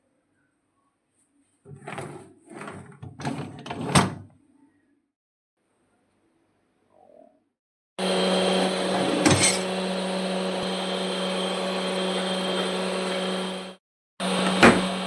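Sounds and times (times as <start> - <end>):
dishwasher motor hum and hiss: 8.0 - 15.0.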